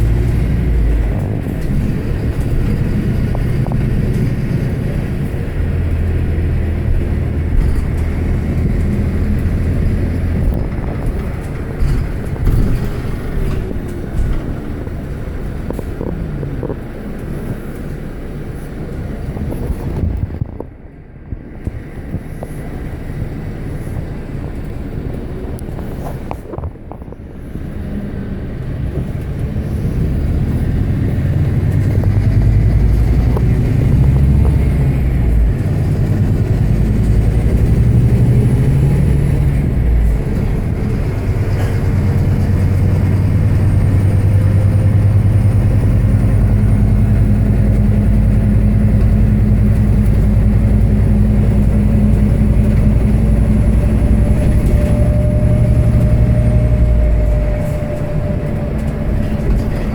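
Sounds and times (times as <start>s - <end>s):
bus engine running: 0.0s - 59.9s
rising drivetrain tone: 27.8s - 59.9s.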